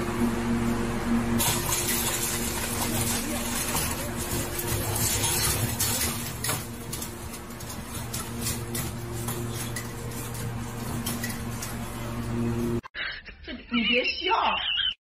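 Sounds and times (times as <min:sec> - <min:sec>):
metal bowl clattering on wire cage: 0:01.4 - 0:12.1.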